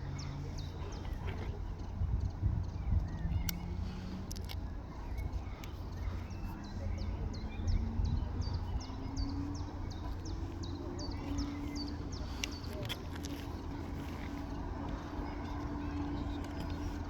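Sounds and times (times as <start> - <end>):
diesel train engine: 0.0 - 17.0
wind rumble on microphone: 0.0 - 17.0
bird chirping: 4.9 - 17.0.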